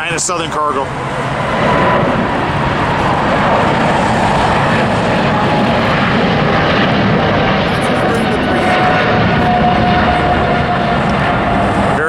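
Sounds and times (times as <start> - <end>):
faint high engine whine: 0.0 - 12.0
jet engines at takeoff: 0.0 - 12.0.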